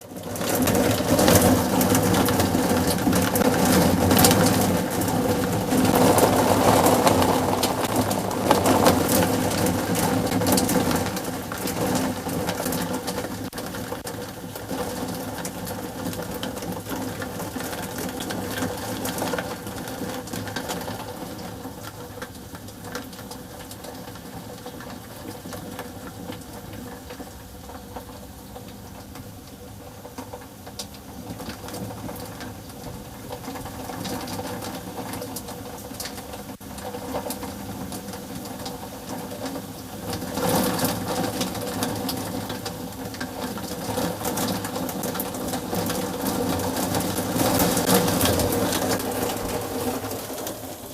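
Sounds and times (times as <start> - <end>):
thunder rumbling: 0.5 - 12.9, 45.0 - 50.9
sharp crackles: 3.4 - 12.1.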